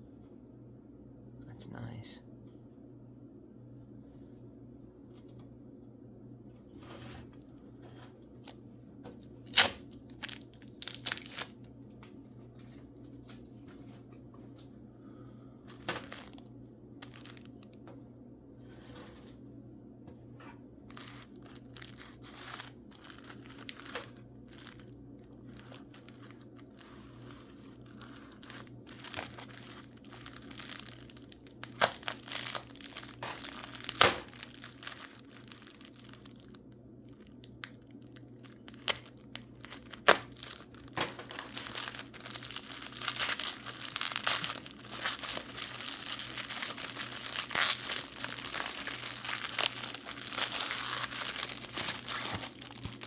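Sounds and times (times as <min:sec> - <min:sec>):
packing paper crinkling: 0:09.2 - 0:14.7, 0:15.7 - 0:17.8, 0:20.8 - 0:53.0.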